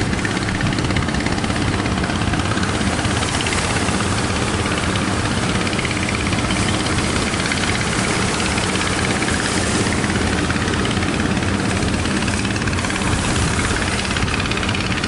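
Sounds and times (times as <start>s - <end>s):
wind blowing over microphone: 11.4s - 15.0s.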